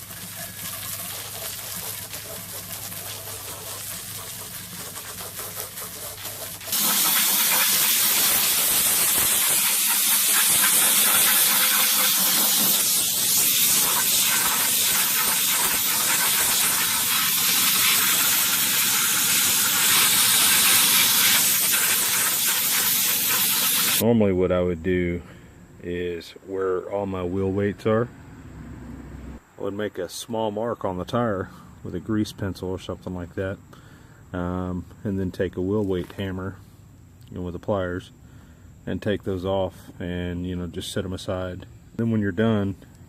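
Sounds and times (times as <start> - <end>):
water spraying from hose nozzle: 0.0 - 24.0.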